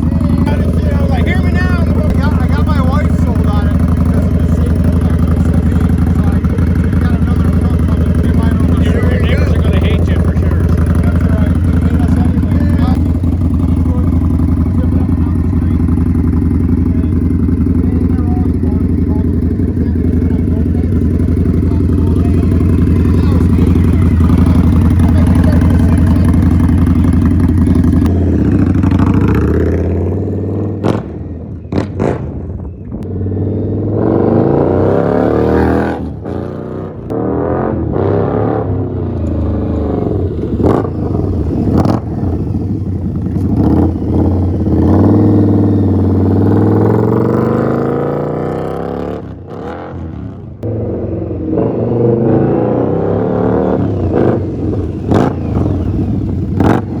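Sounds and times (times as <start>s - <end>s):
motorcycle engine revving: 0.0s - 57.0s
exhaust cracks: 39.1s - 47.9s.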